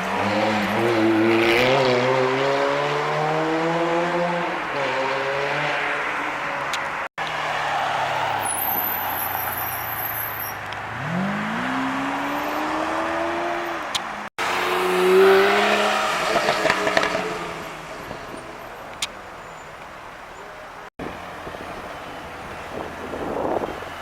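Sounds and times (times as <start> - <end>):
supercar engine accelerating: 10.7 - 13.7.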